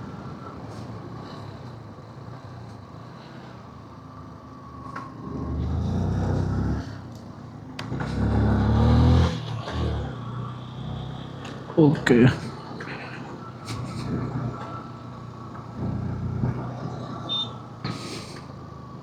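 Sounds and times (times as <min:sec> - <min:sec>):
motorcycle engine and road noise: 0:00.0 - 0:19.0
vehicle engine revving: 0:00.0 - 0:19.0.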